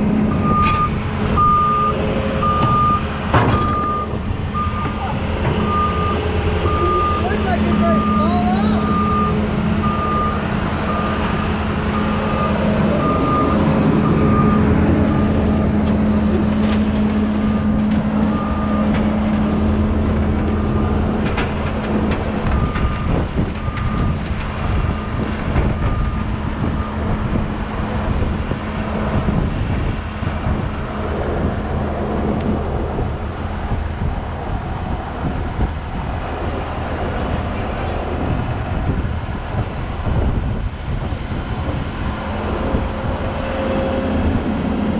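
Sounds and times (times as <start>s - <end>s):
excavator diesel engine running: 0.0s - 44.9s
warning alarm beeping: 0.3s - 11.2s.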